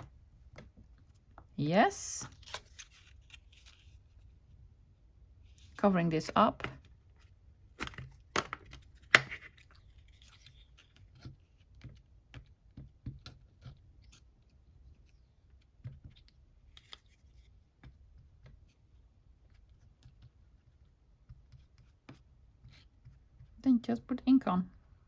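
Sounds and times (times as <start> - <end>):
rubber stamp handled on desk: 6.3 - 6.9, 7.8 - 9.7.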